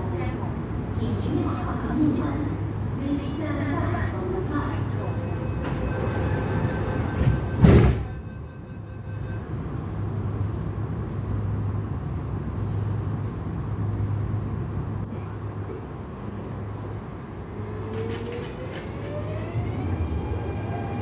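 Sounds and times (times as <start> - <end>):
electric train interior hum: 0.0 - 21.0.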